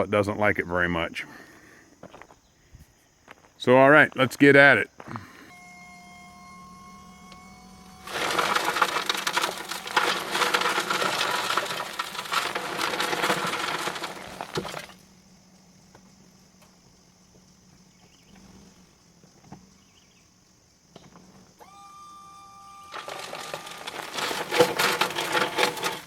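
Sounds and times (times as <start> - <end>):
crushed stone pouring: 7.8 - 15.0, 22.9 - 26.0.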